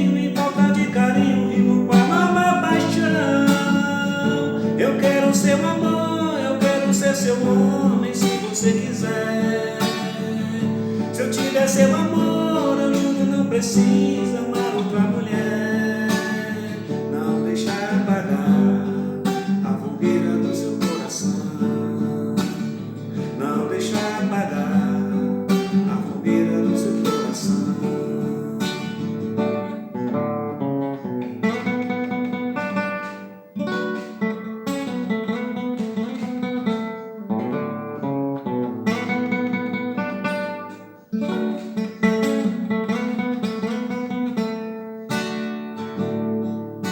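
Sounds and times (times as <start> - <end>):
acoustic guitar playing: 0.0 - 46.9.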